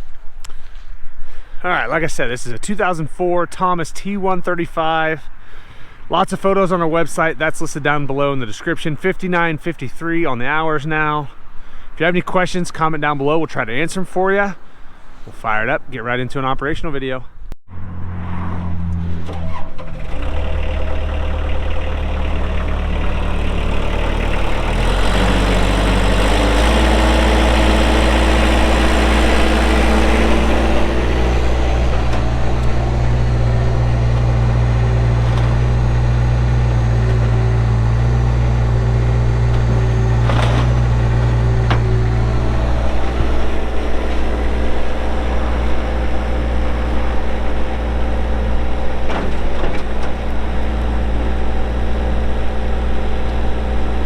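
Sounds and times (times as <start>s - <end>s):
diesel engine running: 17.7s - 54.0s.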